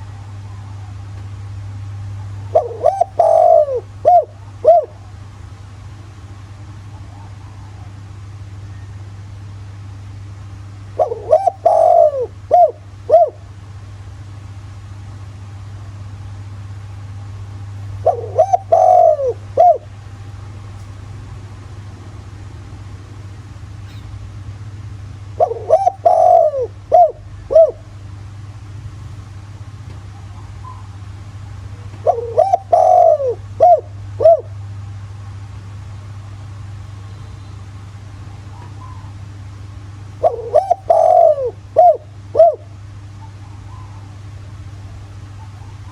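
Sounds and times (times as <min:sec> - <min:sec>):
dove cooing: 0:02.1 - 0:05.2, 0:10.8 - 0:13.6, 0:17.0 - 0:21.1, 0:25.3 - 0:28.0, 0:30.2 - 0:31.0, 0:31.7 - 0:34.6, 0:38.4 - 0:44.3.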